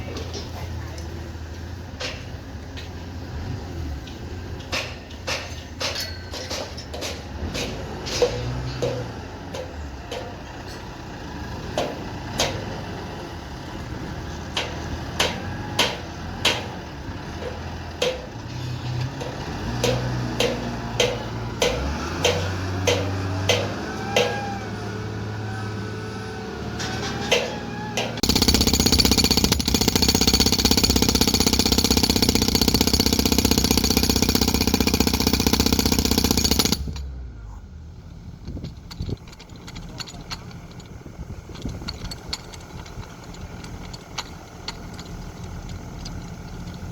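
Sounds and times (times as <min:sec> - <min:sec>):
powered hammering machine: 0:19.2 - 0:25.2, 0:26.8 - 0:37.1.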